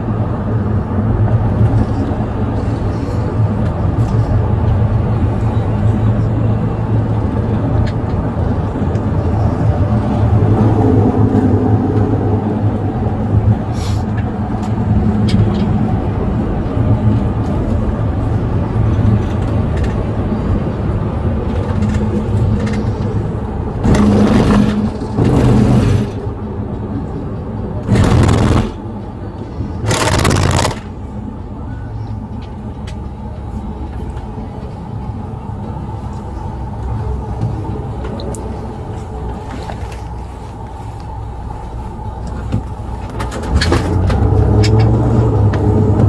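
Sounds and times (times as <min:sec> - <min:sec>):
vehicle engine and road noise: 0:00.0 - 0:46.0
loud rushing swells: 0:09.1 - 0:15.2, 0:27.8 - 0:31.3.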